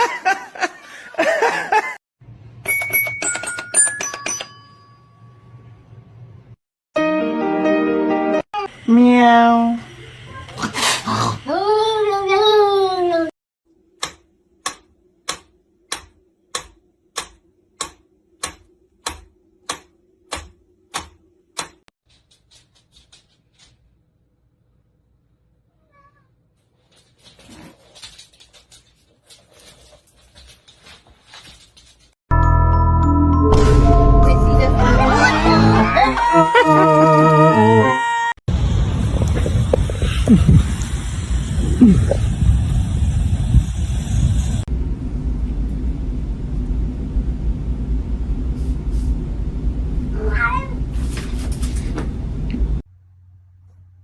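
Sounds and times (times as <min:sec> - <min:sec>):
rustling and scratching: 0:22.0 - 0:24.0, 0:26.6 - 0:32.2, 0:50.9 - 0:52.2
cat meowing: 0:25.7 - 0:26.3
low rumble: 0:33.3 - 0:35.8, 0:38.5 - 0:50.2.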